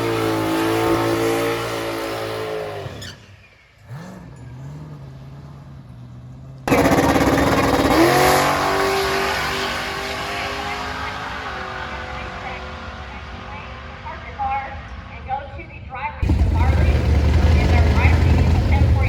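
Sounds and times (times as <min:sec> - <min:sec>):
engine revving and idling: 0:03.8 - 0:13.8, 0:16.2 - 0:19.0
engine at full throttle: 0:06.6 - 0:13.8, 0:16.2 - 0:19.0.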